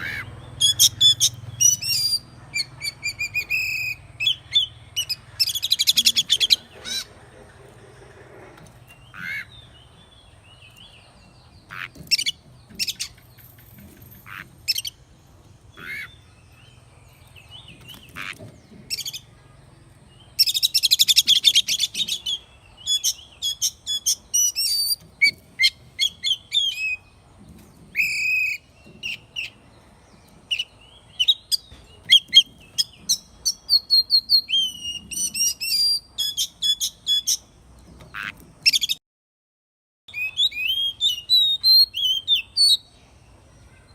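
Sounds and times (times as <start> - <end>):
bird whistled phrases and trills: 28.0 - 29.5, 40.1 - 42.9.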